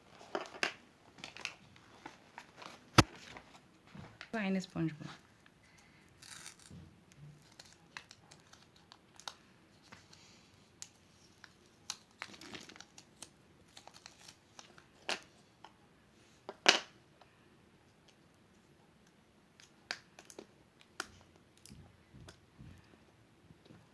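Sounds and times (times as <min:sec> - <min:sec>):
foil wrapper crinkling and tearing: 0:06.1 - 0:10.0, 0:10.8 - 0:14.9.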